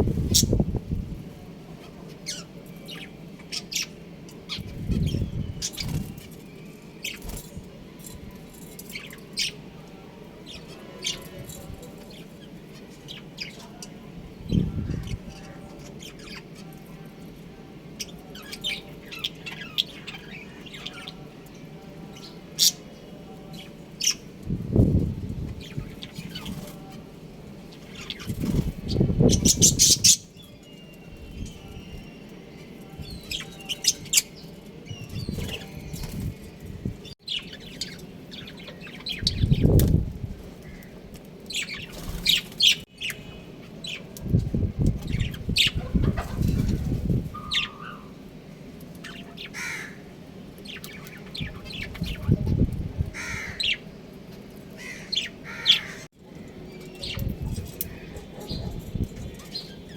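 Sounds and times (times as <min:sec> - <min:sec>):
budgerigars chirping: 0:28.9 - 0:30.3
wings flapping: 0:41.8 - 0:42.8.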